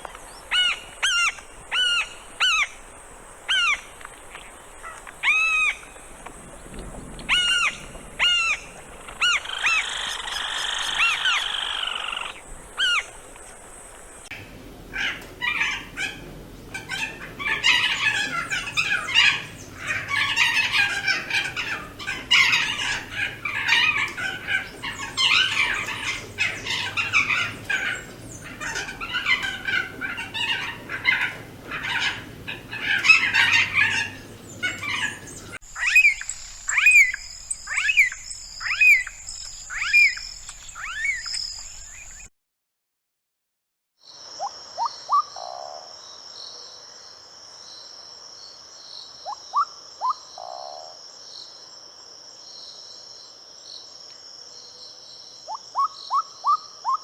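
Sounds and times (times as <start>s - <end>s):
birds chattering: 0.0s - 14.3s, 16.7s - 42.3s.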